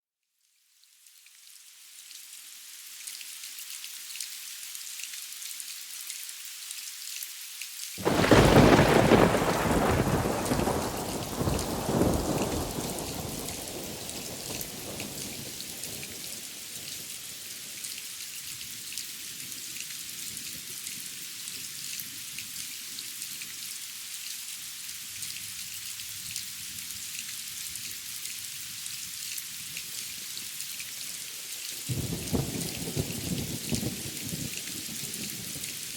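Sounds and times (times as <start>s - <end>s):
thunderclap rumbling: 8.0s - 15.5s
rain hissing: 8.0s - 18.5s, 29.5s - 35.9s.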